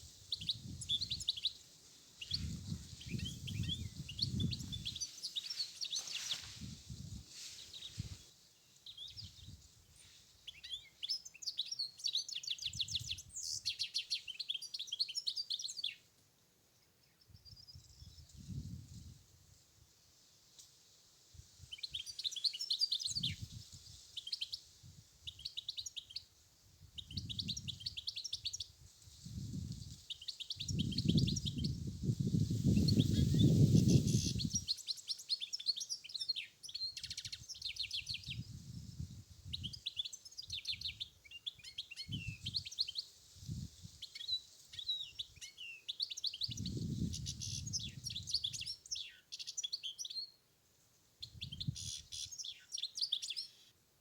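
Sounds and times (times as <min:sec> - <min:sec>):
wind rumble on microphone: 0:00.0 - 0:01.4, 0:02.2 - 0:05.1, 0:06.4 - 0:08.3, 0:09.1 - 0:10.0, 0:17.4 - 0:19.4, 0:23.2 - 0:23.9, 0:26.8 - 0:30.0, 0:30.6 - 0:34.7, 0:38.0 - 0:39.9, 0:42.1 - 0:42.7, 0:43.4 - 0:44.0, 0:46.4 - 0:48.8, 0:51.2 - 0:52.0
bird twittering song: 0:00.0 - 0:01.6, 0:02.2 - 0:06.7, 0:07.6 - 0:16.1, 0:21.7 - 0:26.3, 0:27.0 - 0:28.7, 0:29.6 - 0:38.6, 0:39.4 - 0:50.4, 0:51.2 - 0:53.8.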